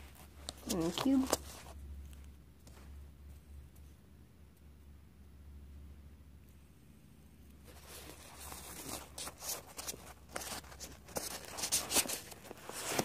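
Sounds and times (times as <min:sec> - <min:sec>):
fidget toys rustling and scraping: 0:00.0 - 0:03.9, 0:07.6 - 0:13.0.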